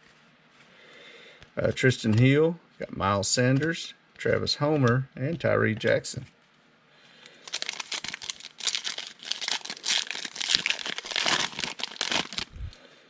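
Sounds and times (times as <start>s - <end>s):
plastic wrapper crinkling and tearing: 7.3s - 12.7s.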